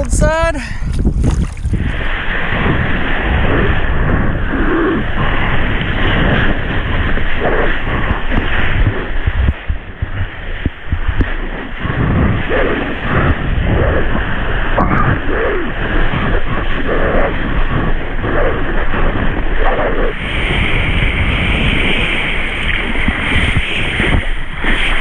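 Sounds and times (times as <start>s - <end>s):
water splashing and rushing: 0.0s - 4.2s
wind buffeting microphone: 0.0s - 25.0s.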